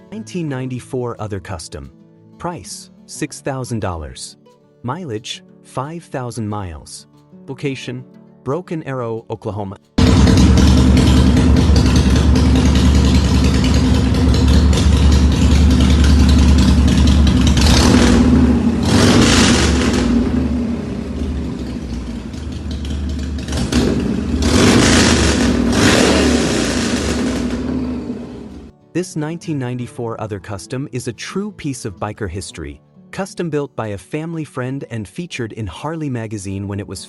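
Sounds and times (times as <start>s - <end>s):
motorcycle engine revving: 10.0s - 28.7s.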